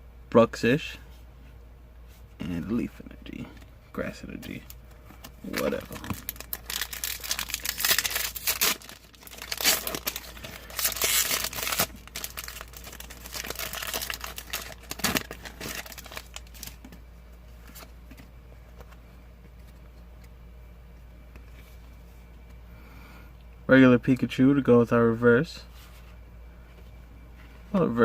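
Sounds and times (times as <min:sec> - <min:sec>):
foil wrapper tearing: 0:05.4 - 0:16.8
foil wrapper crinkling: 0:05.4 - 0:16.9.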